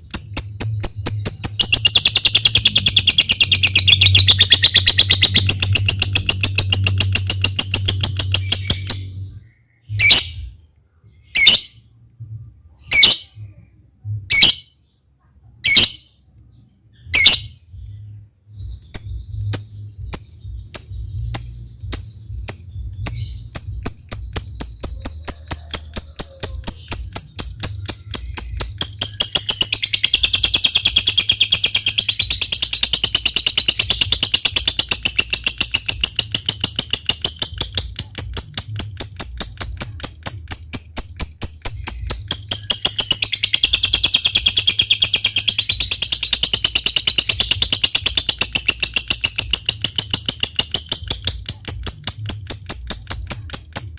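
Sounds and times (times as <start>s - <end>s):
quick ticking bird notes: 0.0s - 9.1s, 18.8s - 53.9s
lovebird chattering trill: 0.0s - 10.5s, 17.0s - 17.6s, 18.7s - 53.9s
low steady hum: 0.0s - 53.9s
lovebird sharp calls: 18.9s - 53.9s.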